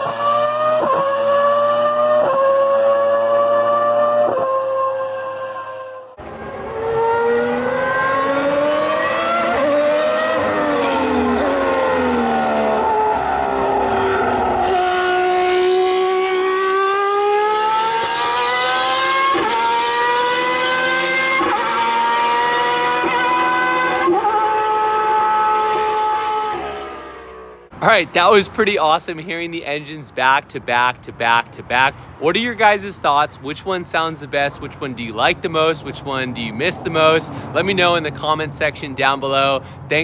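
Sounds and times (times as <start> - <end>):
racing car engine revving: 0.0 - 27.8.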